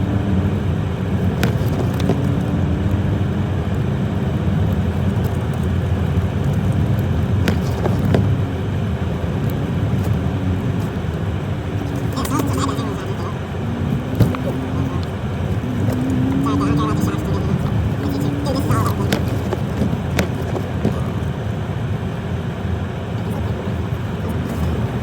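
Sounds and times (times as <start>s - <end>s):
pickup engine rumble: 0.0s - 25.0s.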